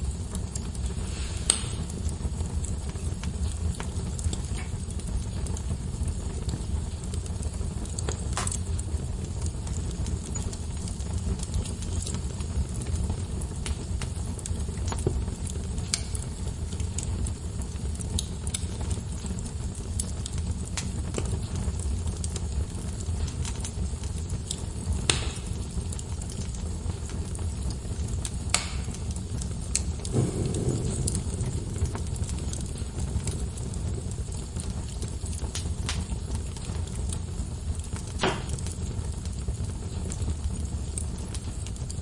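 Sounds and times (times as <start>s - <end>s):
low fire rumble: 0.0s - 42.0s
wood fire crackling: 0.0s - 42.0s
sharp pops and snaps: 1.4s - 2.0s, 7.8s - 8.8s, 14.8s - 16.4s, 23.2s - 25.6s, 26.2s - 37.2s, 37.8s - 38.8s.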